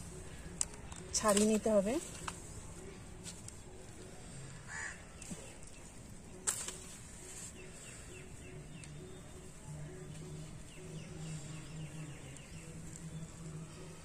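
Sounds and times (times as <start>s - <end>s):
caw-like bird call: 4.7s - 5.0s.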